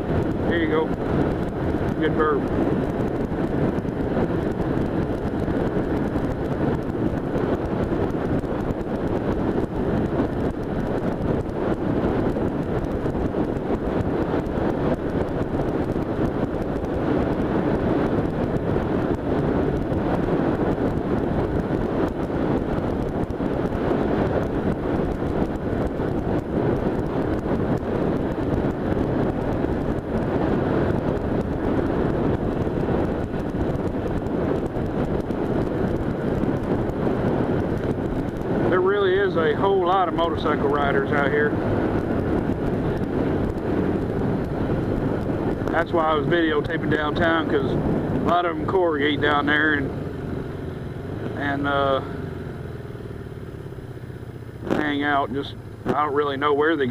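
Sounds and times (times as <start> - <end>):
motorcycle engine running: 0.0 - 56.9
road noise: 0.0 - 56.9
wind buffeting microphone: 0.0 - 56.9.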